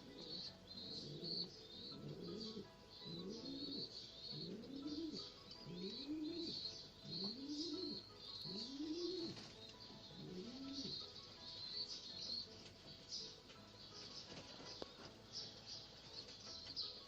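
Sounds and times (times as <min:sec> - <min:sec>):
pigeons cooing: 0:00.0 - 0:15.2
high chirping: 0:00.0 - 0:17.0.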